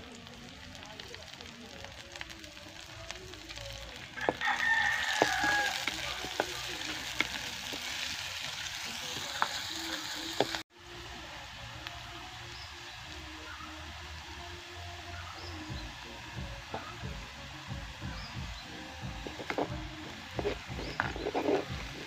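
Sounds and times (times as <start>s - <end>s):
onions sizzling in hot oil: 0.0s - 22.0s
rooster crowing: 4.1s - 6.4s.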